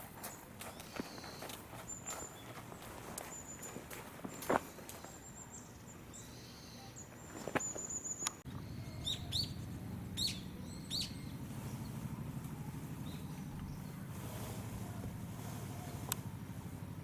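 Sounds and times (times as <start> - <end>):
steady low rumble: 8.5 - 17.0
sharp bird chirps: 10.2 - 11.9.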